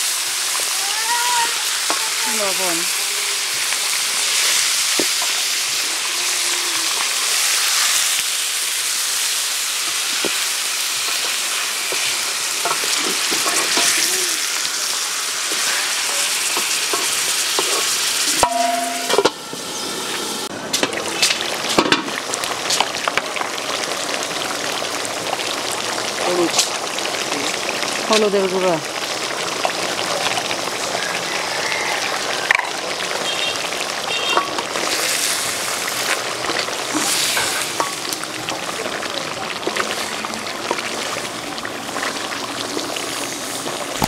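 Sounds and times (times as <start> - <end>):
meat and potatoes sizzling: 0.0 - 44.0.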